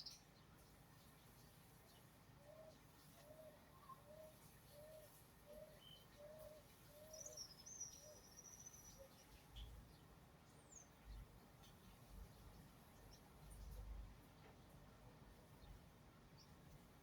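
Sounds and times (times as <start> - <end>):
faint bird calls: 2.4 - 9.2.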